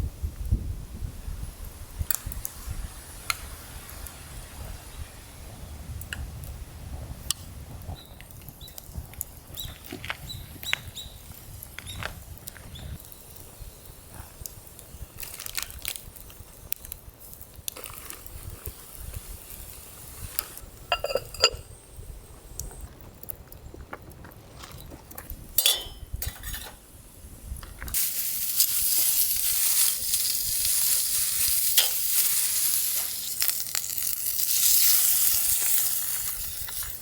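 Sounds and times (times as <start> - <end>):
ringing metallic clink: 20.9 - 21.6, 25.6 - 26.1.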